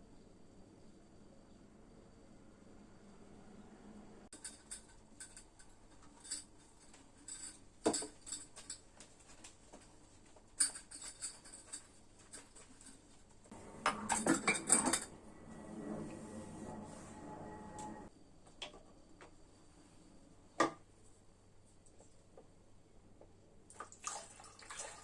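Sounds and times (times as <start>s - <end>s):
kitchenware clinking and clattering: 4.3s - 9.3s, 10.5s - 15.9s.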